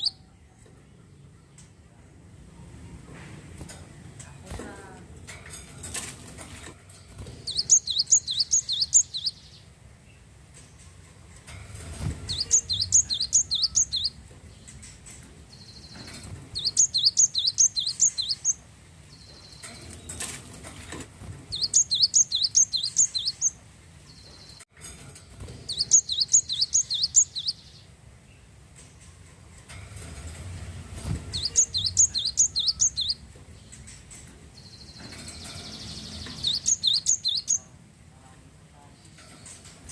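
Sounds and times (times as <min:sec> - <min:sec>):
bird singing high chirps: 0:00.0 - 0:00.3, 0:07.4 - 0:09.6, 0:12.3 - 0:14.2, 0:15.5 - 0:20.0, 0:21.5 - 0:24.6, 0:25.7 - 0:27.9, 0:31.3 - 0:33.2, 0:34.6 - 0:37.7.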